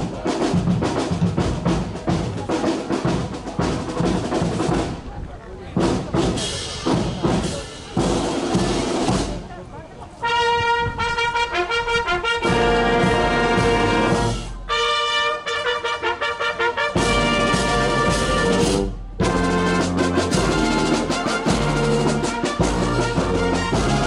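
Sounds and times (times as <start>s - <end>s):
brass band music: 6.1s - 9.4s, 10.2s - 24.0s.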